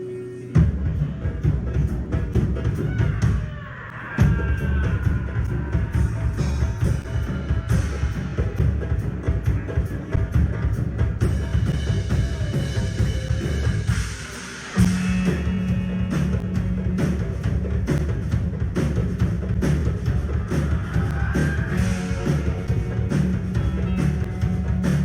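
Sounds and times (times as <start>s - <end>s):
drum kit beat: 0.6s - 3.5s, 4.2s - 25.0s
live rock band playing: 5.3s - 25.0s.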